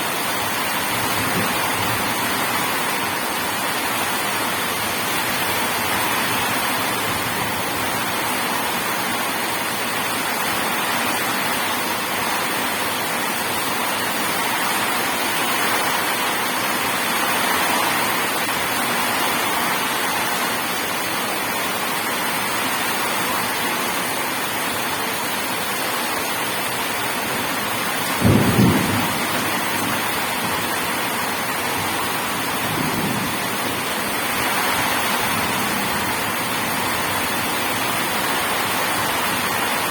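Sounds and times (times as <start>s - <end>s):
steady rain: 0.0s - 39.9s
thunder: 28.1s - 31.0s.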